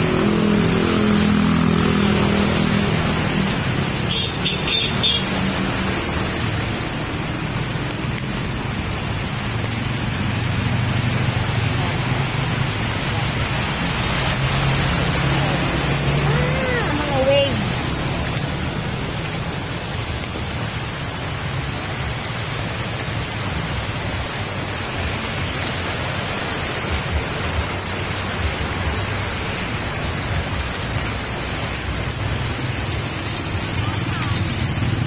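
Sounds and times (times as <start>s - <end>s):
heavy rain hissing: 0.0s - 35.0s
vehicle traffic rumble: 0.0s - 35.0s.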